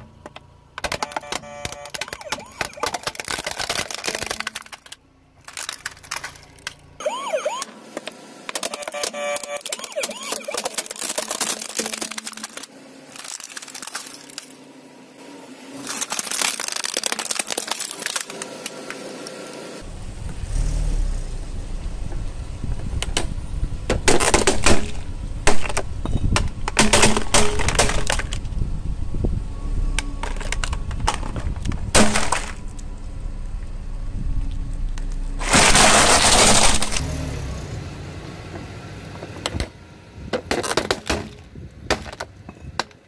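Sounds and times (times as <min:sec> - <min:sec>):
plastic toy cars cracking: 0:00.2 - 0:06.9, 0:07.5 - 0:14.6, 0:15.7 - 0:19.6, 0:23.9 - 0:28.6, 0:30.2 - 0:32.8, 0:35.4 - 0:37.2, 0:40.3 - 0:43.0
toy electronic siren wailing: 0:01.0 - 0:03.1, 0:07.0 - 0:07.8, 0:08.7 - 0:11.0
low rumble: 0:19.8 - 0:37.0.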